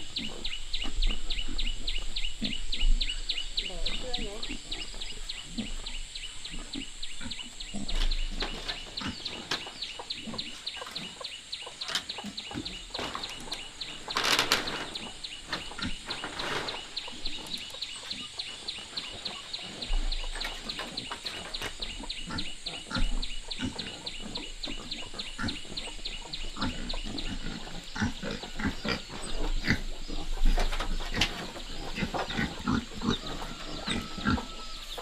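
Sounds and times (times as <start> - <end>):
rustling noise: 12.9 - 17.7.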